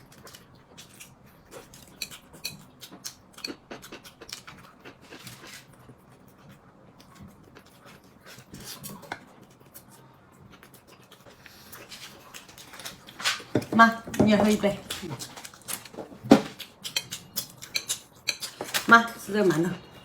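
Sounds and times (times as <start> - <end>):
person chewing wetly: 0.0 - 5.5, 14.8 - 18.6.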